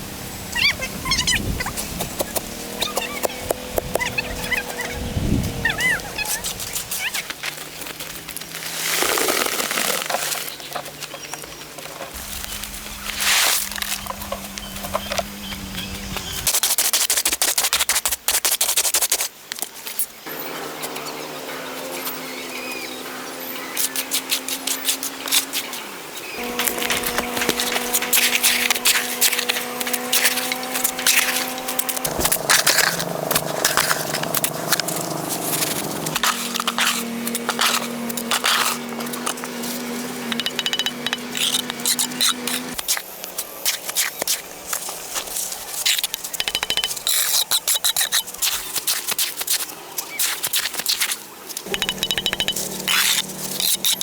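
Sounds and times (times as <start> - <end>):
steady hum: 12.2 - 16.5, 26.4 - 38.2, 51.7 - 54.0
hand work clicking and scraping: 26.4 - 54.0.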